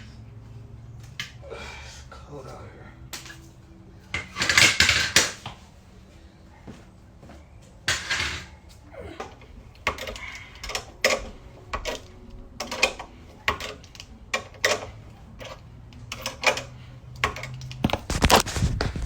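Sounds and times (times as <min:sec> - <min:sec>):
car jack metal clicks and clanks: 0:04.2 - 0:05.5, 0:07.8 - 0:08.5, 0:09.2 - 0:18.4.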